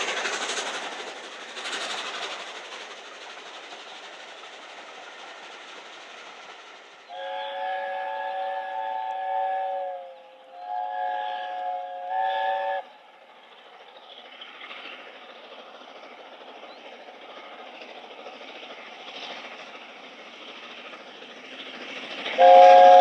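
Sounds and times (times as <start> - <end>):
train running noise: 0.0 - 23.0
steam locomotive chime whistle: 7.1 - 12.9, 22.4 - 23.0.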